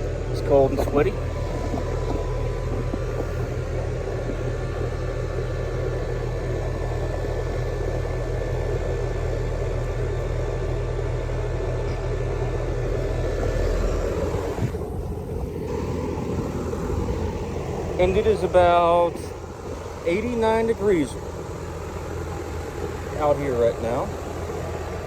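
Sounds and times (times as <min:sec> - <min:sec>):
air conditioner unit droning: 0:00.0 - 0:25.0
deep hum: 0:00.0 - 0:25.0.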